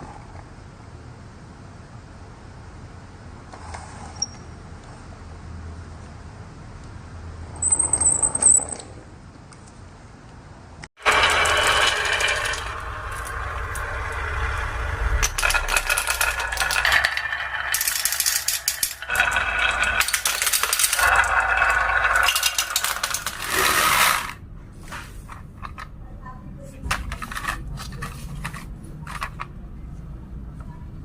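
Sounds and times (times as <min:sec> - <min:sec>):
marbles rattling down marble run: 0:11.0 - 0:24.4.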